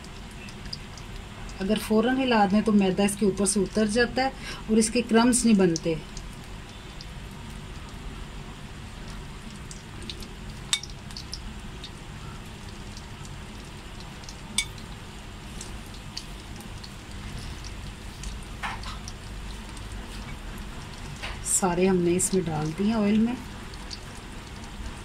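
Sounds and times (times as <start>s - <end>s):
chicken deep-frying in oil: 0.0s - 25.0s
metal tongs clicking on pan: 10.7s - 11.4s.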